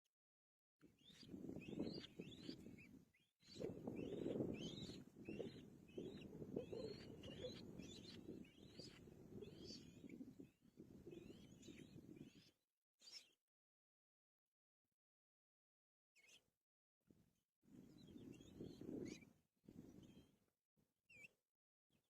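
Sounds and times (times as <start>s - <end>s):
songbird singing whistled notes: 1.0s - 10.2s, 11.1s - 13.4s.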